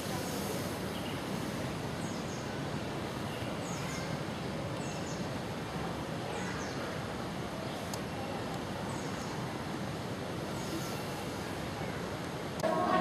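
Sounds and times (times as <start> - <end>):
steady background rumble: 12.5 - 13.0.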